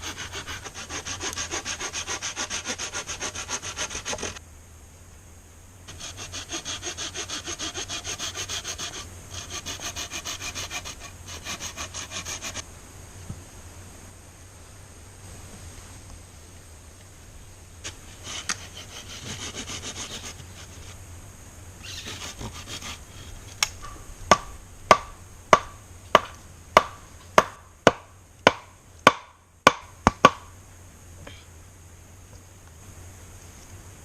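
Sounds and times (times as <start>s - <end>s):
rasping on wood: 0.0s - 4.4s, 5.9s - 12.6s, 18.1s - 21.0s, 22.0s - 23.4s.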